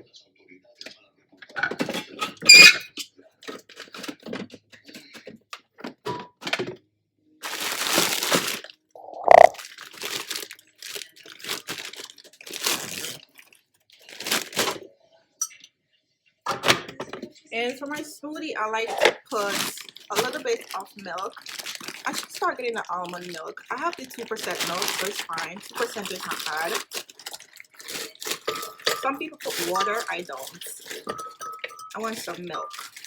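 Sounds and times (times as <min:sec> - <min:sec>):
plastic packaging crinkling and tearing: 0:07.4 - 0:14.8, 0:18.9 - 0:33.0.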